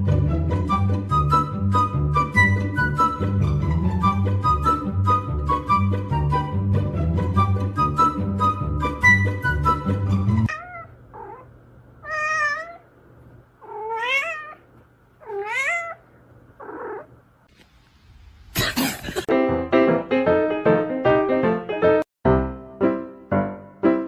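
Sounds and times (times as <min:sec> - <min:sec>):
music: 0:00.0 - 0:10.5, 0:19.3 - 0:24.0
piano music: 0:00.0 - 0:10.5, 0:19.3 - 0:24.0
cat meowing: 0:10.5 - 0:12.9, 0:13.6 - 0:17.1.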